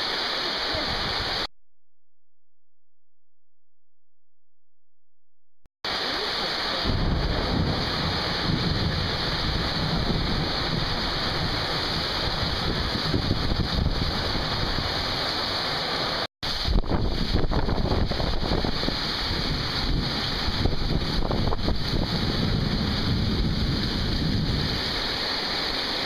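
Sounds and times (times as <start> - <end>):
heavy rain pouring: 0.0 - 1.5, 5.8 - 26.0
wind gusting on microphone: 6.8 - 26.0.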